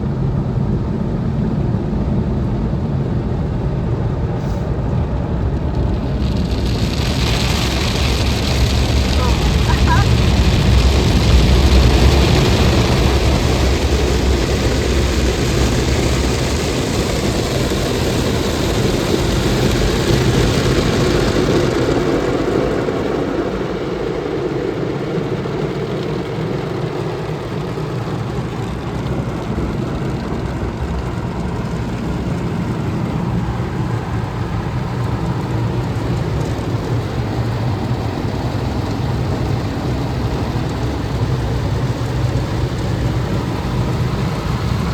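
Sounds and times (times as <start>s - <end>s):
car wash machinery rumbling: 0.0s - 44.9s
water spray hissing: 6.8s - 10.4s.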